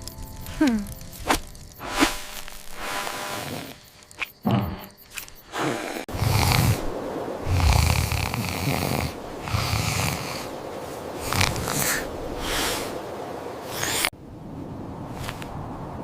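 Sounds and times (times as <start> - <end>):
cartoon character snoring: 4.4 - 4.9, 5.5 - 6.9, 7.5 - 10.4.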